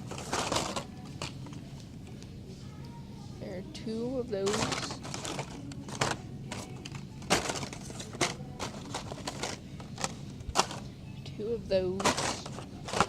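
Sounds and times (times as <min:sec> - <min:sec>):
packaging rustling: 0:00.0 - 0:01.4, 0:04.5 - 0:10.8, 0:12.0 - 0:13.0.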